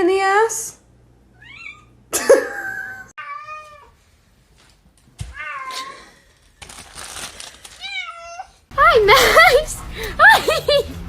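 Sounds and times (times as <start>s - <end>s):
cat meowing: 1.4s - 2.0s, 3.2s - 3.9s.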